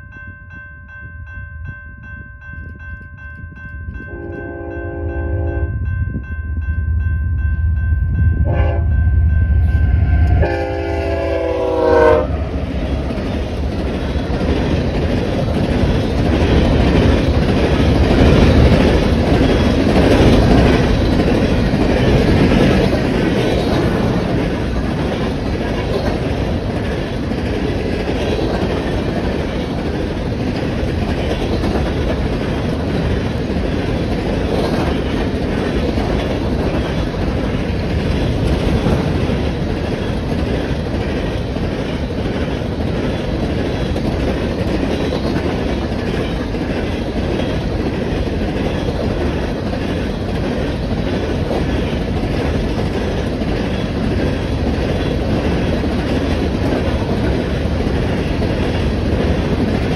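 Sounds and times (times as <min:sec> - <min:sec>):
freight train wheels rumbling: 0:00.0 - 0:59.9
wheels clacking over rail joints: 0:12.6 - 0:59.9.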